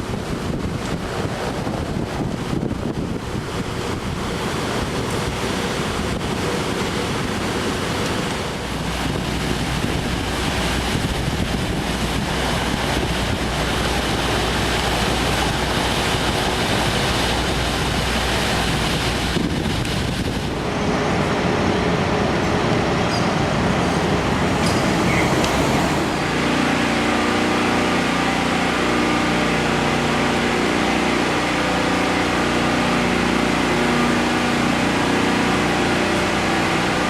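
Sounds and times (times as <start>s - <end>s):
steady rushing noise: 0.0s - 37.0s.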